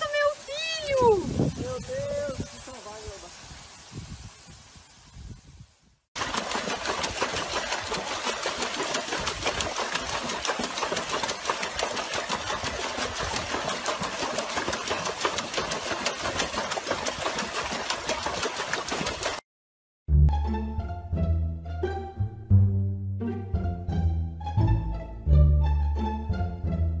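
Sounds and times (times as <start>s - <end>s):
dog paddling in water: 6.2s - 19.4s.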